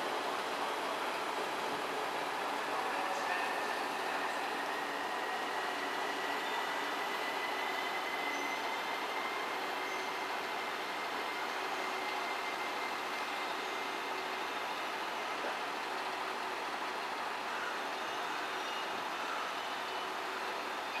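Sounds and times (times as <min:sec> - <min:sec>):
traffic noise: 0:00.0 - 0:21.0
train moving slowly past: 0:00.0 - 0:21.0.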